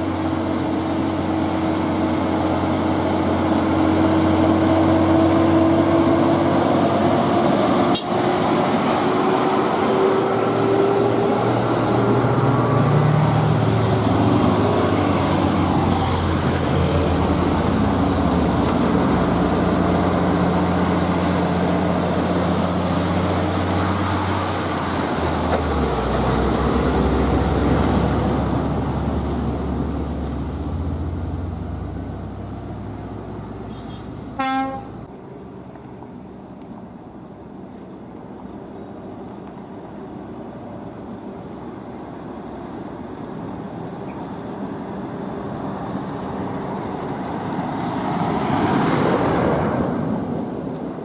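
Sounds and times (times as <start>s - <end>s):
diesel truck engines running: 0.0s - 51.0s
truck horn toot: 7.9s - 8.2s, 33.7s - 35.0s.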